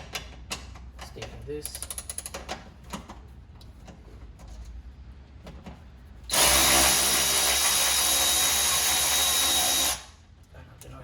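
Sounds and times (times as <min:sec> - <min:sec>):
power drill running: 0:06.3 - 0:10.1.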